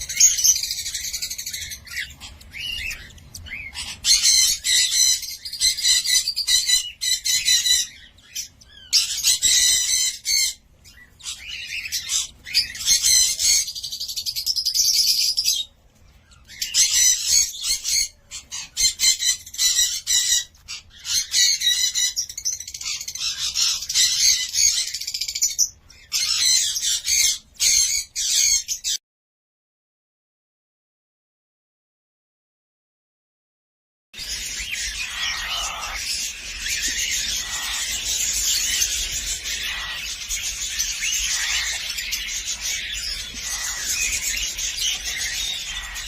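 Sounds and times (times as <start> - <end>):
cockatiel chirping: 0.0 - 29.0, 34.2 - 46.0
cockatiel whistling: 34.2 - 46.0.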